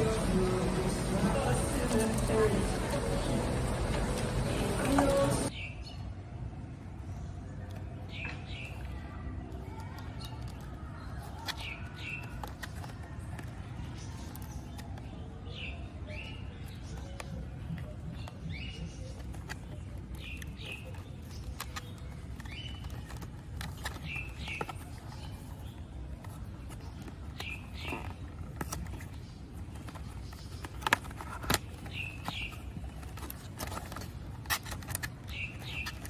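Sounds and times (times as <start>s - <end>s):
distant traffic rumble: 0.0s - 5.6s
small bird chirping: 13.8s - 36.0s.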